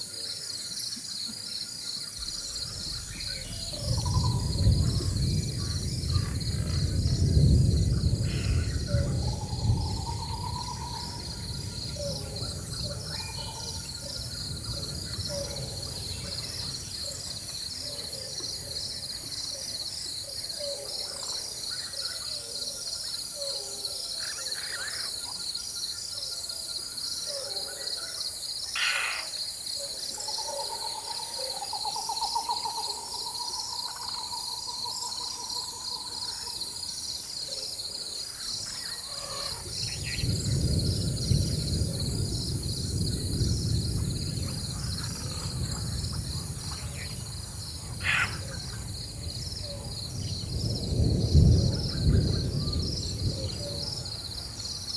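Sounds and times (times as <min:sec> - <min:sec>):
bird calls and trills: 0:00.0 - 0:42.3, 0:44.4 - 0:50.7
insect chorus: 0:00.0 - 0:54.9
distant thunder rumble: 0:02.1 - 0:19.3, 0:38.2 - 0:54.9.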